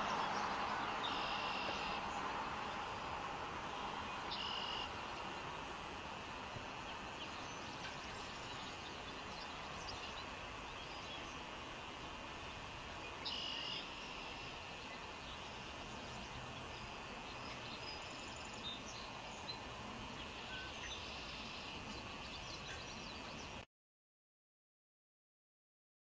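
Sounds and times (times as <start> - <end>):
outdoor background hiss: 0.0 - 23.6
faint bird chirps: 1.0 - 2.0, 4.3 - 5.0, 13.1 - 15.6.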